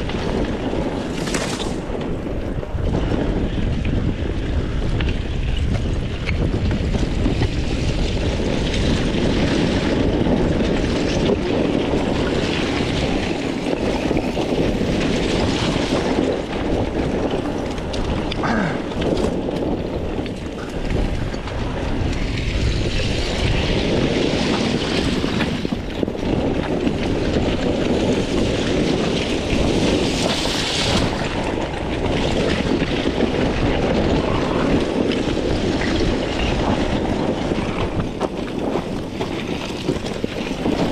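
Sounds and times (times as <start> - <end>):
two-stroke dirt bike engine: 0.0 - 40.9
wind noise on microphone: 0.0 - 40.9.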